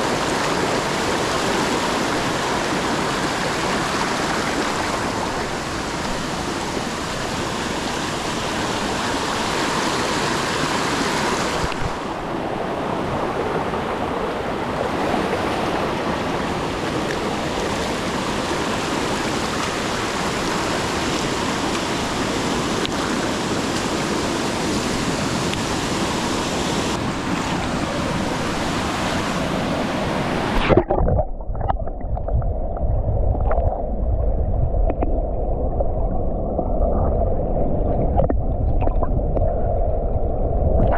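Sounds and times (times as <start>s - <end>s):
fast-flowing stream rushing: 0.0s - 31.0s.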